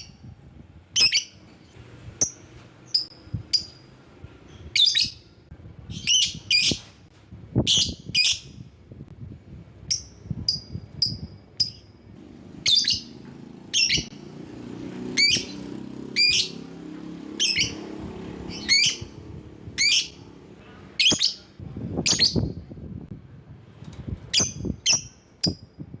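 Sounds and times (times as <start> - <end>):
bird shrill chirps: 12.6 - 14.1, 17.4 - 19.2.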